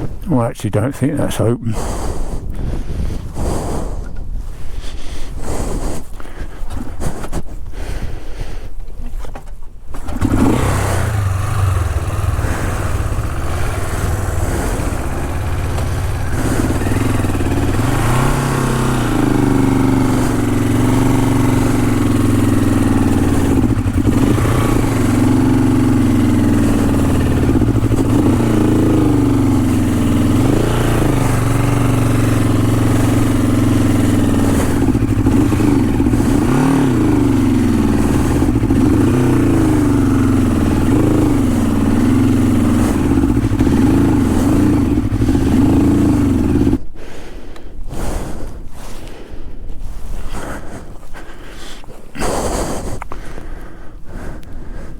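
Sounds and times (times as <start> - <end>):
motorcycle engine revving: 10.0 - 46.8.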